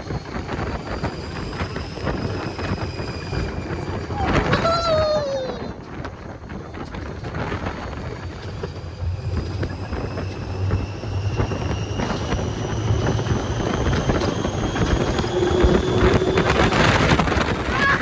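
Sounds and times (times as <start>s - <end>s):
ride vehicle rumble and clatter: 0.0s - 18.0s
motor whine rising in pitch: 6.9s - 17.7s.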